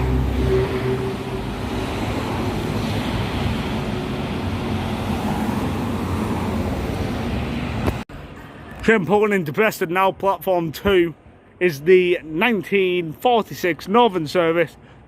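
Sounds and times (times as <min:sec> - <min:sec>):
moving vehicle rumbling: 0:00.0 - 0:08.9.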